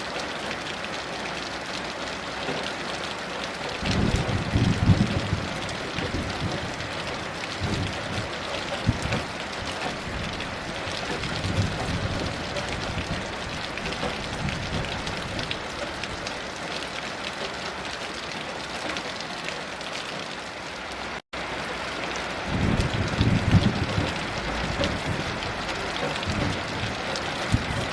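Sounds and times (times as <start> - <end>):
heavy rain pattering: 0.0 - 27.9
distant thunder rumbling: 3.7 - 16.4, 22.4 - 27.9.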